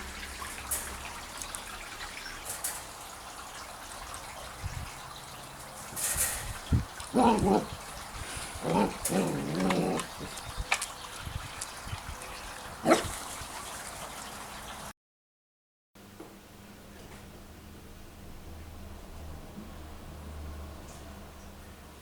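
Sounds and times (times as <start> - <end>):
dogs yipping and whining: 7.1 - 10.8, 12.8 - 13.3.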